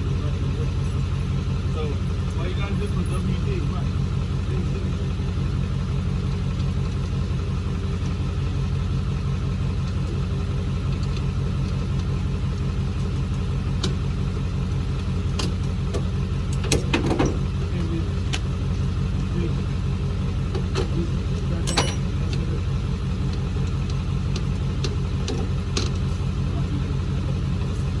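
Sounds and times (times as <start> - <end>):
car engine running: 0.0 - 28.0
sharp clicks and knocks: 15.0 - 18.5, 20.5 - 21.0, 23.3 - 26.1.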